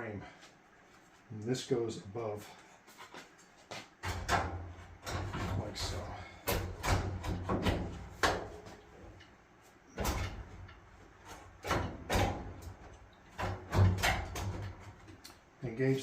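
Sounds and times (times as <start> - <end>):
panel knocking and thumping: 4.0 - 8.8, 11.6 - 15.0.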